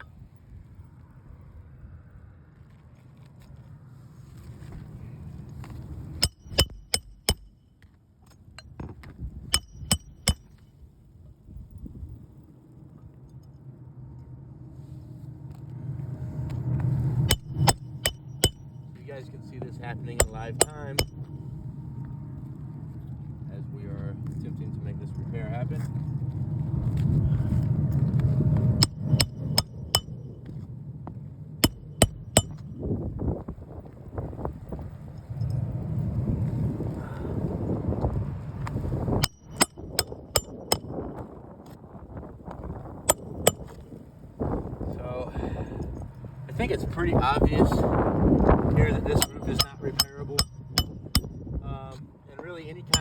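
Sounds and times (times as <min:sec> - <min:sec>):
hammer striking metal nail: 0:06.2 - 0:07.6, 0:09.5 - 0:10.6, 0:17.3 - 0:18.6, 0:20.2 - 0:21.3, 0:28.8 - 0:30.2, 0:31.6 - 0:32.7, 0:39.2 - 0:40.9, 0:43.1 - 0:43.8, 0:49.0 - 0:51.4.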